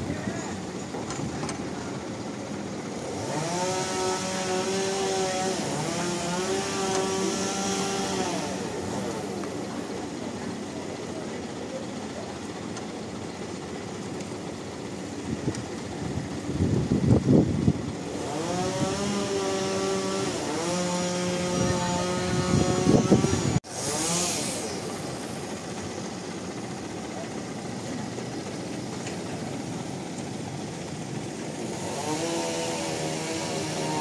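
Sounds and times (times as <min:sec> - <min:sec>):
machinery engine revving: 0:00.0 - 0:34.0.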